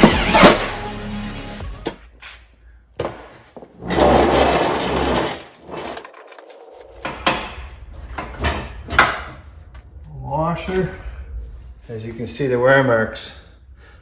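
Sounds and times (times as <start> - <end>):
metal parts scraping: 3.8 - 9.1.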